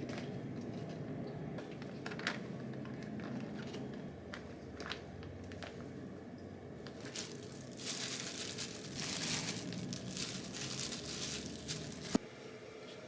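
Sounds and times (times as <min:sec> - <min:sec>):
rustling and crinkling: 0:06.8 - 0:12.2.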